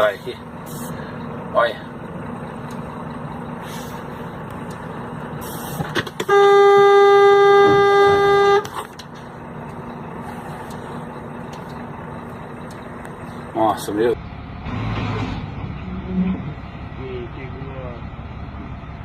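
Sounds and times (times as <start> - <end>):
rumble of engines and traffic: 0.0 - 19.0
vehicle horn blast: 6.2 - 8.8.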